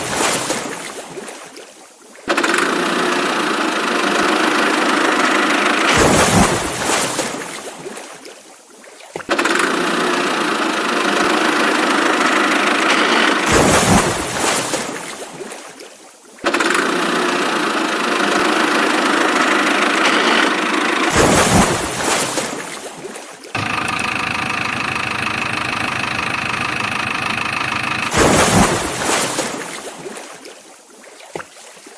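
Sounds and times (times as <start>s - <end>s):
engine starting and running: 2.3s - 7.0s, 9.3s - 14.4s, 16.5s - 22.5s, 23.6s - 29.8s.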